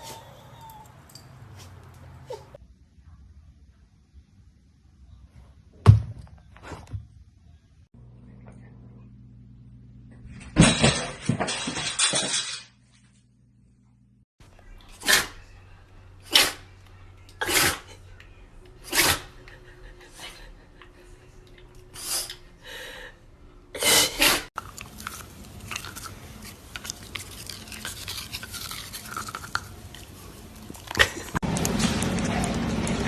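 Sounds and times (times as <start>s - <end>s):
sneeze-like bursts: 15.0s - 15.4s, 16.2s - 16.6s, 17.4s - 18.0s, 18.8s - 19.3s, 23.8s - 24.5s.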